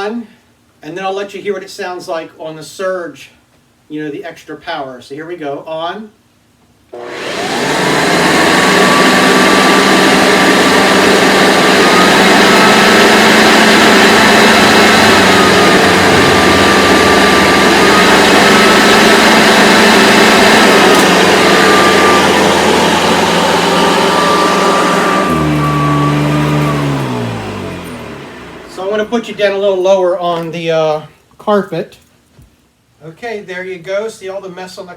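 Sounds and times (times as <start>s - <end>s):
vacuum cleaner motor whine: 7.0s - 30.0s.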